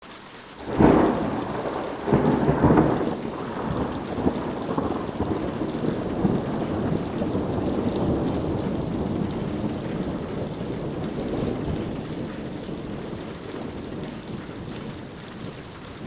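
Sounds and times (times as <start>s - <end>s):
steady rain falling: 0.0s - 16.0s
thunder: 0.6s - 16.0s.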